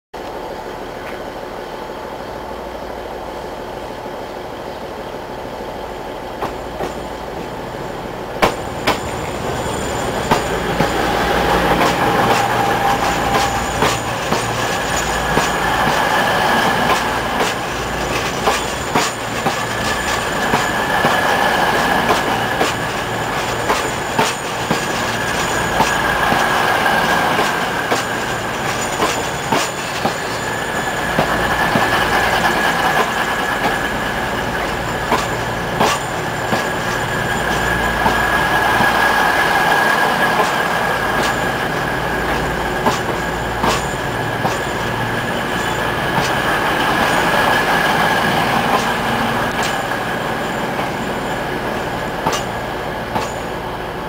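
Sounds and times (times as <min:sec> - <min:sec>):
train passing: 0:00.2 - 0:54.0
high steady squeal: 0:08.6 - 0:53.8
wheels clicking over rail joints: 0:10.1 - 0:50.0, 0:52.2 - 0:53.5.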